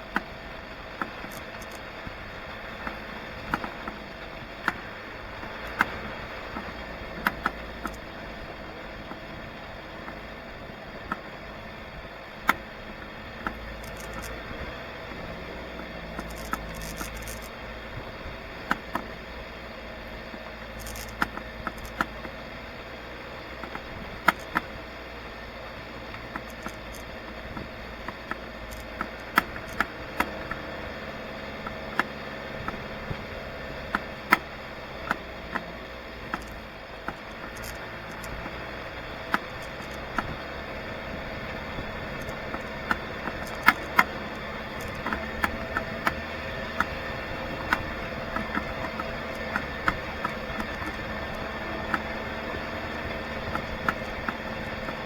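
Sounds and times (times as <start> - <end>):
vehicle engine running: 0.0 - 55.0
sharp knocks and rattles: 1.0 - 8.3, 13.4 - 19.2, 20.2 - 22.4, 26.1 - 30.8, 33.8 - 55.0.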